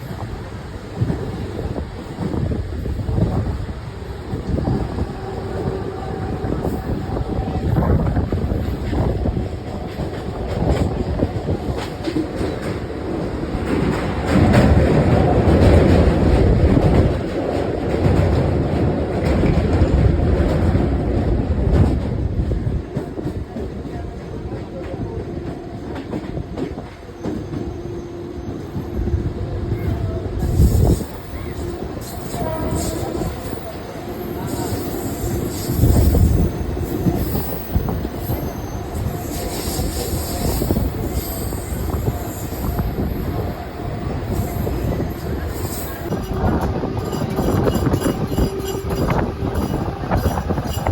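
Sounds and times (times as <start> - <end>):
electric train rumbling on track: 0.0 - 50.9.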